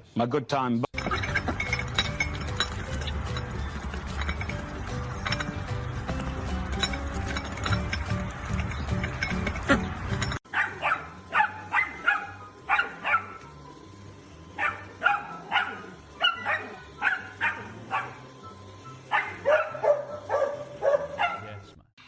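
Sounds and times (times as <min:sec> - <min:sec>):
dog barking: 0:10.5 - 0:13.4, 0:14.6 - 0:18.3, 0:19.0 - 0:21.6.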